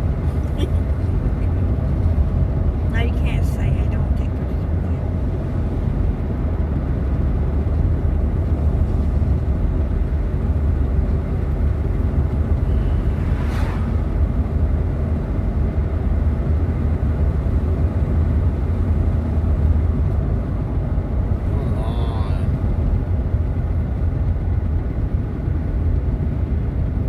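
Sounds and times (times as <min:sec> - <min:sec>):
car road and engine rumble: 0:00.0 - 0:27.0
brief hiss: 0:12.7 - 0:14.0.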